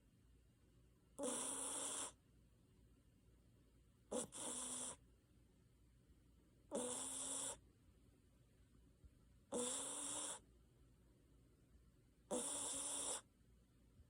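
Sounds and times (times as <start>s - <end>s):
dog snoring: 1.2s - 2.2s, 4.1s - 5.0s, 6.7s - 7.6s, 9.5s - 10.5s, 12.3s - 13.3s.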